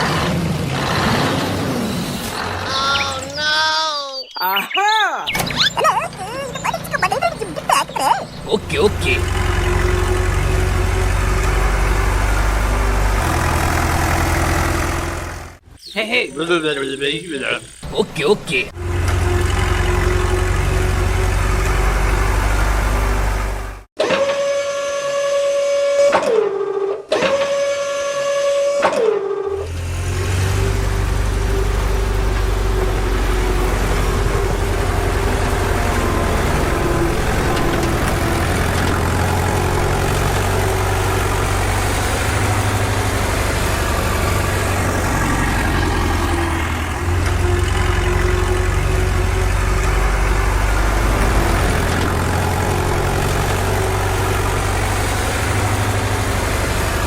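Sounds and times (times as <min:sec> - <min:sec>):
engine running low-pitched: 0:00.0 - 0:03.7, 0:05.3 - 0:23.9, 0:29.4 - 0:57.0
horn-like tones sliding down: 0:24.0 - 0:56.0.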